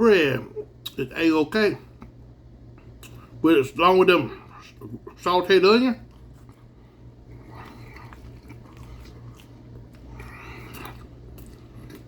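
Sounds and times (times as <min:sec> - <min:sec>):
steady low hum: 0:00.0 - 0:12.0
man chewing food: 0:01.9 - 0:03.4, 0:06.0 - 0:12.0.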